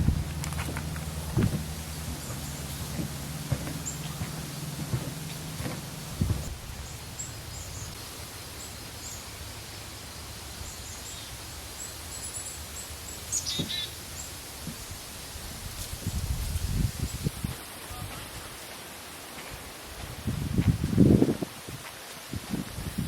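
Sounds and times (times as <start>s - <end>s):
low rumble: 0.0s - 8.0s
small birds chirping: 0.0s - 15.0s.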